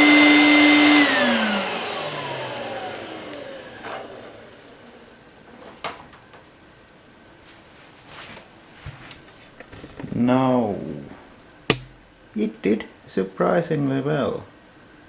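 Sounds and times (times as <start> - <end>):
vacuum cleaner motor spinning down: 0.0 - 5.2.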